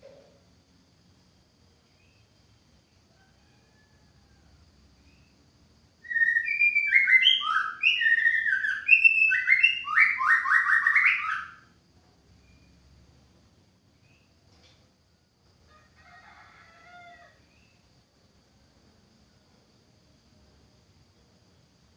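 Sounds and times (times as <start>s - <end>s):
bird whistling song: 6.0s - 11.7s.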